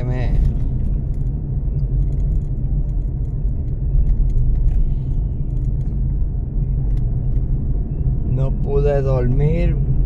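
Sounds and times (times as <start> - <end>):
vehicle rumble inside cabin: 0.0 - 10.0
small clicks and rattles: 0.4 - 6.0.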